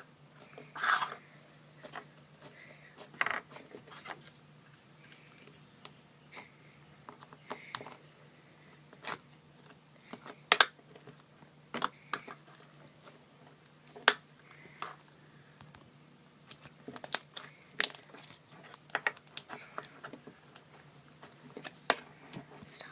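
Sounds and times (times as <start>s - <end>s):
slime popping and crackling: 16.5s - 21.3s.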